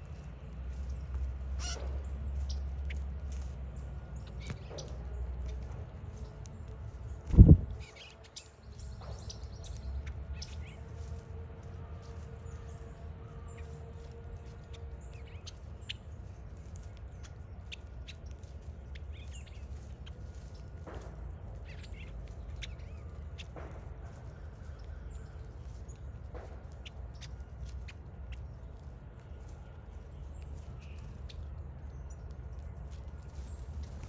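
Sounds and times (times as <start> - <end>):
low background rumble: 0.0 - 34.0
small birds chirping: 0.0 - 34.0.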